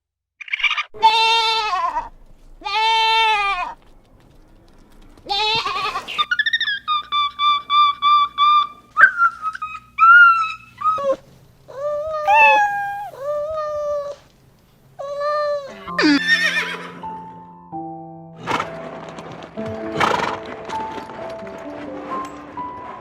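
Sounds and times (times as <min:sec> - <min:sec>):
cat meowing: 0:12.1 - 0:13.4
music with held notes: 0:15.6 - 0:23.0.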